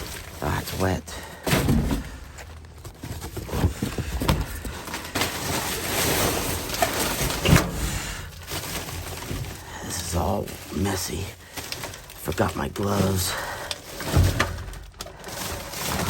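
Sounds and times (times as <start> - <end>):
rustling of boxes and bags: 0.0 - 16.0
knocks and thumps: 1.4 - 5.3.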